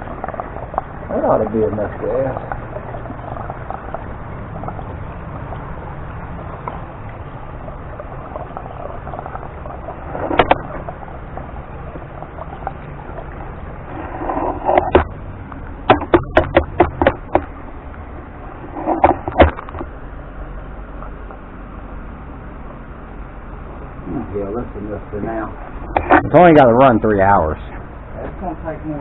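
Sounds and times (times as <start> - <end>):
gasoline pouring into fuel tank: 0.0 - 17.6
sharp knocks or clicks: 14.7 - 15.2, 15.9 - 17.6, 18.9 - 19.9.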